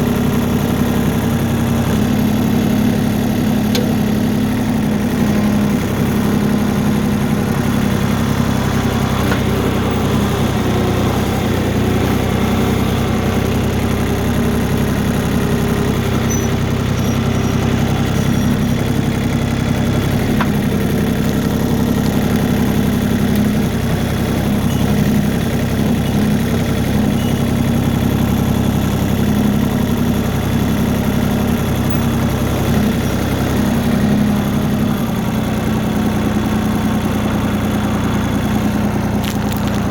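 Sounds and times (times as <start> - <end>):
tractor engine humming: 0.0 - 39.9.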